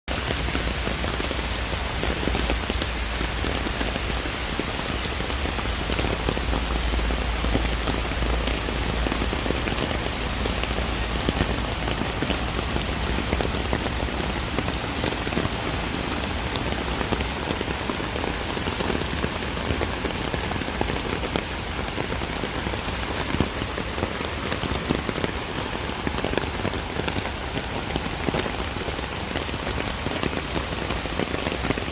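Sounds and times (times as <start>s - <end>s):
heavy rain falling: 0.1s - 31.9s.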